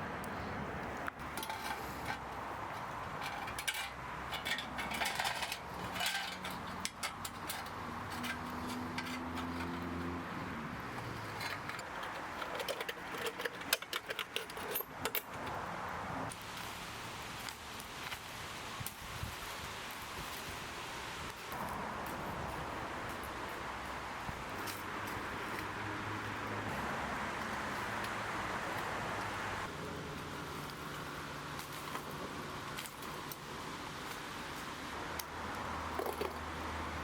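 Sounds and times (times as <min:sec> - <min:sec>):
metal utensils clinking and scraping: 0:01.2 - 0:10.2, 0:10.9 - 0:15.6, 0:35.9 - 0:36.4.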